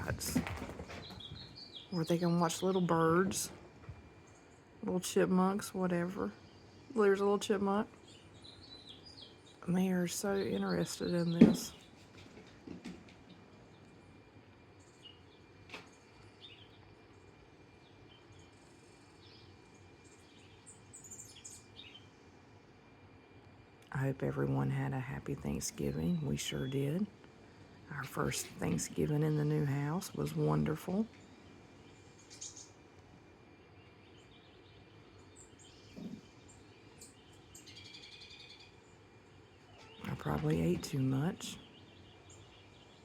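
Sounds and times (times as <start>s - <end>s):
low steady background noise: 0.0s - 43.0s
faint bird chirps: 25.5s - 43.0s.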